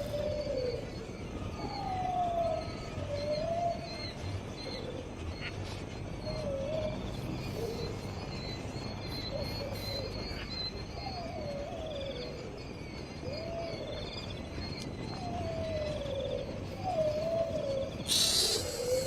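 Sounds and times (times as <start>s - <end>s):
high chirping: 18.0s - 19.0s
animal wavering sliding calls: 18.1s - 19.0s.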